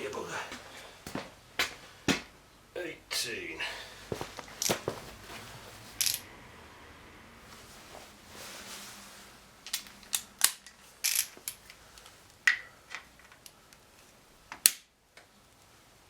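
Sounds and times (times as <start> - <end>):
metallic clicks of hand tools: 6.0 - 6.2, 9.7 - 13.6.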